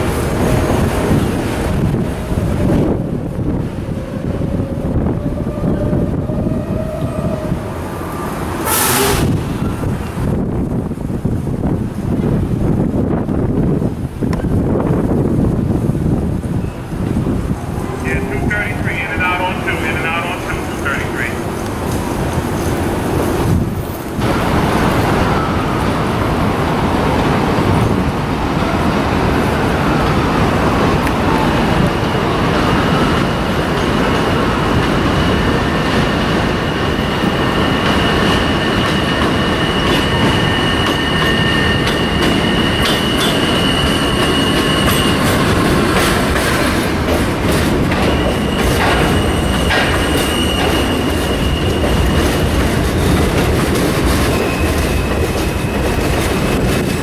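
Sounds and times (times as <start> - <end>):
train wheels rumbling on rail: 0.0 - 57.0
high wheel squeal: 37.4 - 45.6, 48.0 - 52.5, 54.2 - 57.0.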